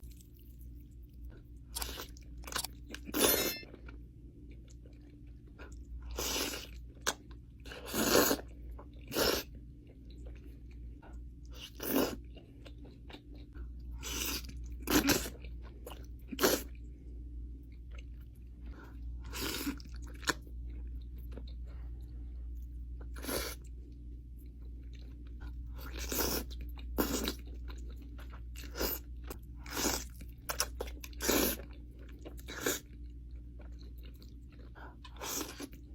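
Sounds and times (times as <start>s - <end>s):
quiet chewing: 17.6s - 35.9s.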